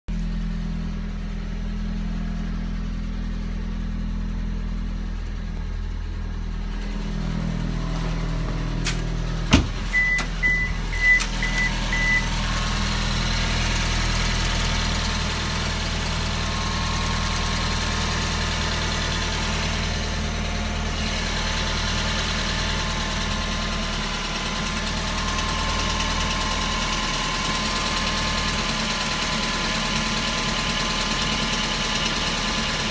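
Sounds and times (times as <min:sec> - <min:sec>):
car engine idling with rattle: 0:00.1 - 0:32.9
short beeps: 0:09.9 - 0:12.3.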